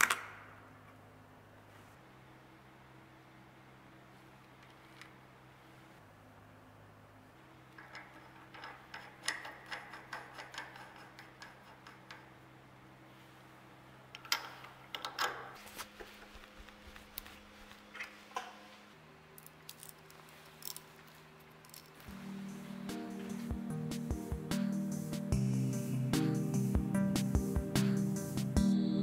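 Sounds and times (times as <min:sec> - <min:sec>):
faint steady hum: 0:00.0 - 0:29.0
metal nut clicking and clinking: 0:07.7 - 0:12.4, 0:14.1 - 0:15.5, 0:21.5 - 0:22.1
wrench clatter: 0:07.7 - 0:12.4, 0:19.4 - 0:22.1.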